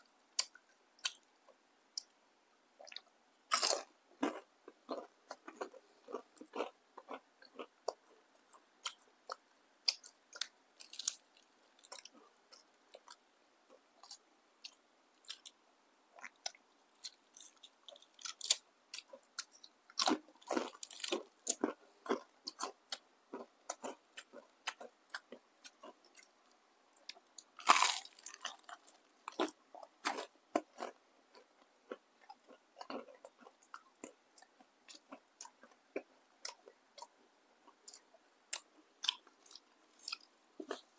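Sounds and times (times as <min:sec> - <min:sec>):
crunching of crispy fried food: 0:02.8 - 0:15.6, 0:16.2 - 0:26.4, 0:27.0 - 0:40.9.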